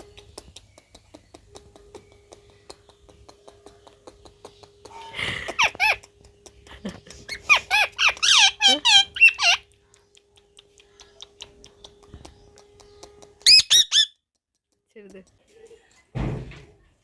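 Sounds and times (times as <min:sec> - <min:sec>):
parrot squawking: 0:05.0 - 0:06.0, 0:07.3 - 0:09.6, 0:13.4 - 0:14.1.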